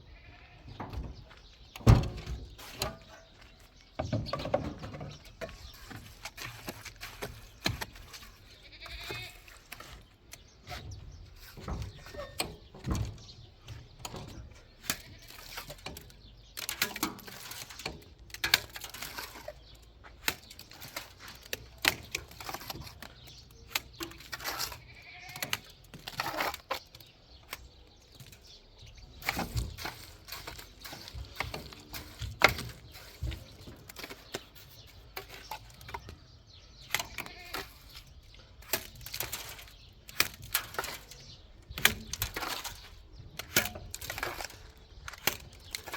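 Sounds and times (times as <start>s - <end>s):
goats bleating: 0.0s - 0.8s, 8.6s - 9.5s, 24.8s - 25.4s
sharp knocks and clatter: 0.7s - 8.4s.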